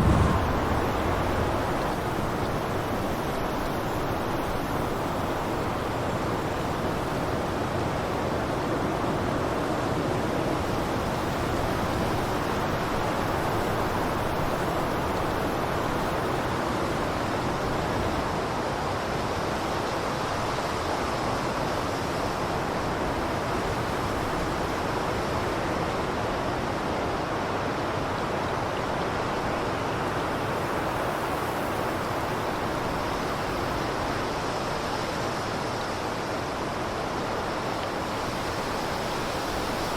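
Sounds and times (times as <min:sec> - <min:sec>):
blizzard wind rushing: 0:00.0 - 0:04.7.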